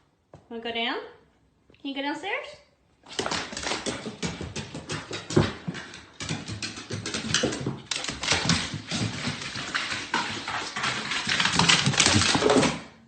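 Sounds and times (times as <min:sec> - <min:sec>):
dog claws clicking on stairs: 0:03.1 - 0:13.0.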